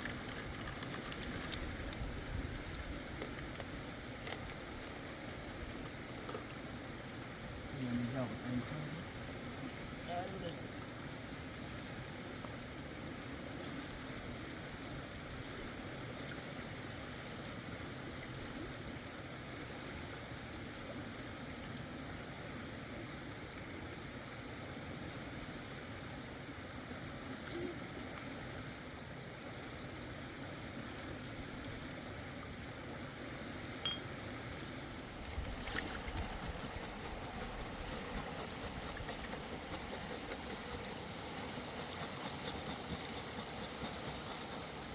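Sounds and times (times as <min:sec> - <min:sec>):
river water flowing: 0:00.0 - 0:44.9
fast fine ticking: 0:35.2 - 0:44.7.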